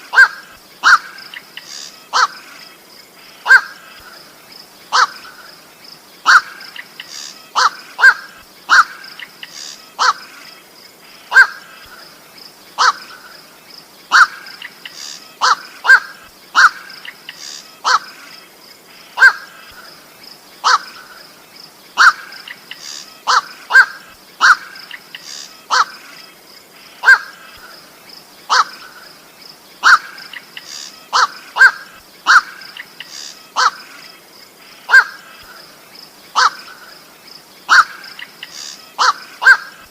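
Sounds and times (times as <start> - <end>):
bird giving harsh calls: 0.0 - 2.4, 3.4 - 4.1, 4.9 - 5.4, 6.2 - 10.4, 11.1 - 11.9, 12.8 - 13.3, 14.1 - 18.2, 20.6 - 21.2, 22.0 - 27.8, 28.5 - 29.1, 29.8 - 34.0, 34.9 - 35.6, 36.3 - 37.0, 37.7 - 39.9.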